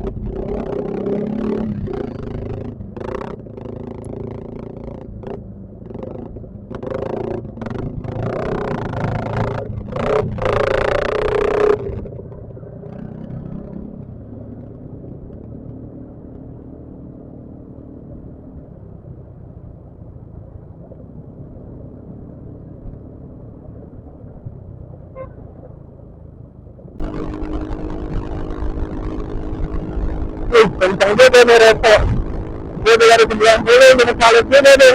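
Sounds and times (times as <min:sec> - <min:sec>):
scooter engine: 0:00.0 - 0:18.0, 0:27.0 - 0:34.9
road rumble: 0:00.0 - 0:34.9.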